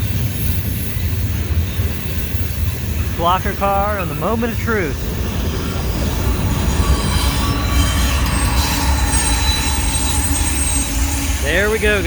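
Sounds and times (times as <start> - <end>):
low train rumble: 0.0 - 12.0
train wheels squealing: 5.0 - 12.0.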